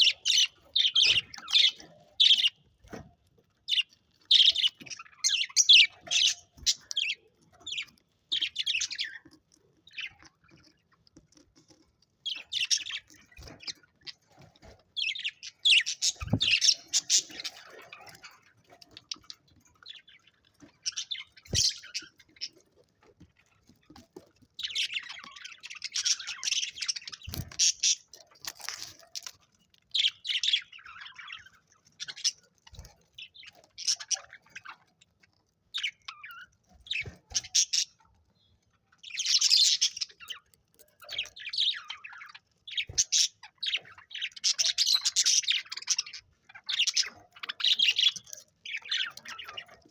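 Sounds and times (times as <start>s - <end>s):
budgerigars chirping: 0.0s - 2.6s, 3.7s - 9.3s, 15.0s - 18.5s, 19.9s - 22.6s, 24.6s - 29.3s, 35.8s - 38.0s, 39.0s - 49.8s.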